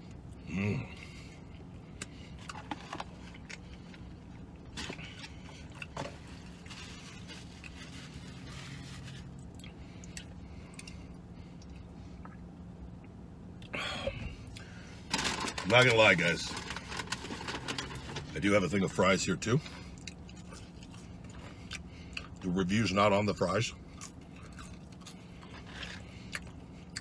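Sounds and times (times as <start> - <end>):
man chewing: 0.0 - 14.9, 19.6 - 22.4, 23.8 - 27.0
steady low hum: 0.0 - 27.0.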